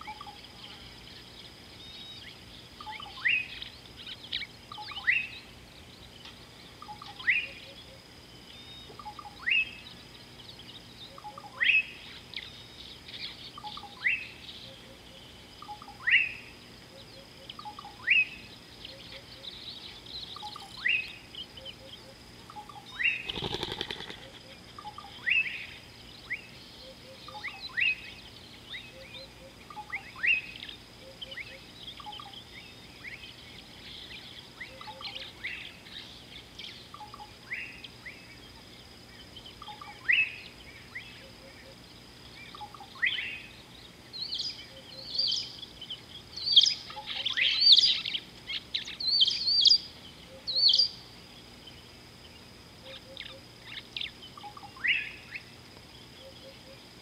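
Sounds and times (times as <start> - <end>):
soft bird chirps: 0.0 - 56.8.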